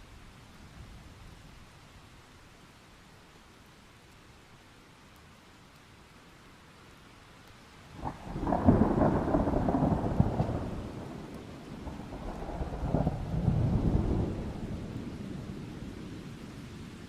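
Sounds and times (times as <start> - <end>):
faint steady rain: 0.0 - 17.0
thunder crack and rumble: 8.0 - 16.3.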